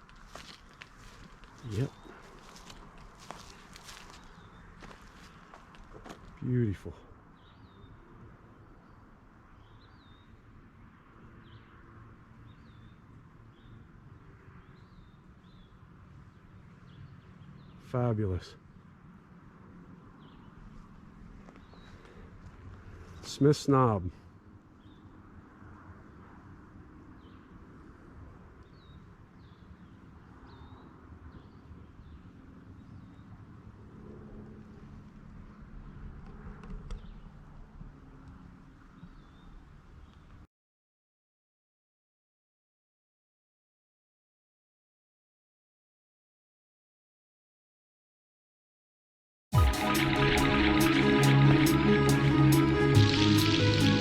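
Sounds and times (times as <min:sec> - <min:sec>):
songbird singing: 0:00.0 - 0:10.5, 0:11.4 - 0:19.0, 0:20.1 - 0:20.7, 0:21.4 - 0:23.5, 0:39.0 - 0:40.4
low rumble of wind: 0:00.0 - 0:23.3, 0:24.2 - 0:40.4.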